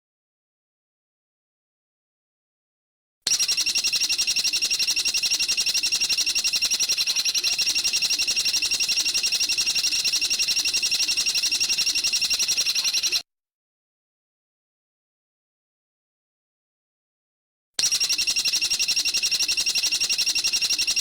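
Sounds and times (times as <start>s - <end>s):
songbird rattling trill: 3.4s - 13.2s.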